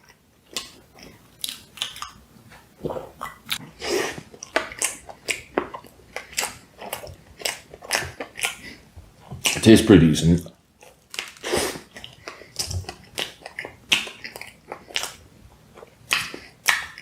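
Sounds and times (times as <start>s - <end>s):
chewing pastry mouth clicks: 10.8s - 15.2s.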